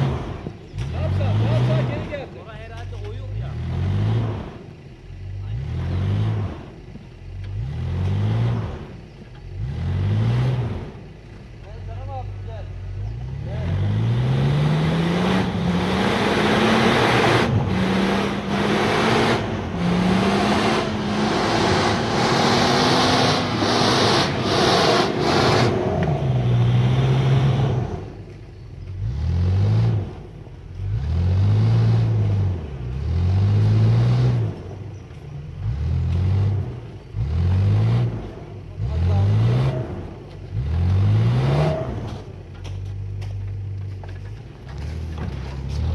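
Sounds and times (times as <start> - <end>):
off-road engine revving: 0.0 - 45.9.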